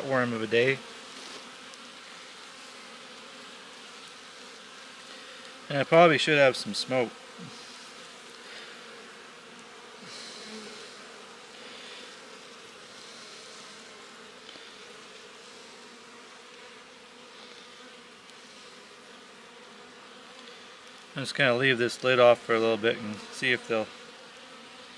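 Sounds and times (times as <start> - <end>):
honeybees buzzing: 0.0 - 24.9.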